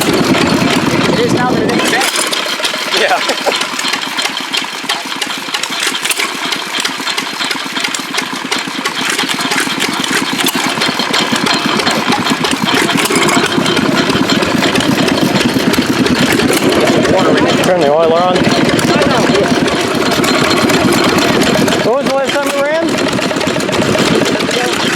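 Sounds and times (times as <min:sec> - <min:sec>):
stationary engine running: 0:00.0 - 0:24.9.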